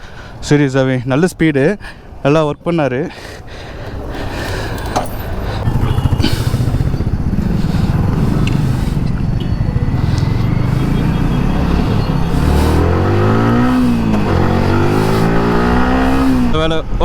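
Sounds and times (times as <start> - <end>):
motorcycle engine running: 3.9 - 16.7.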